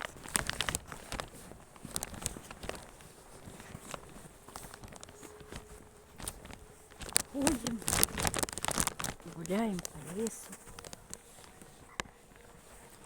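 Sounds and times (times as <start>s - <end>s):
footsteps crunching in snow: 0.0s - 13.0s.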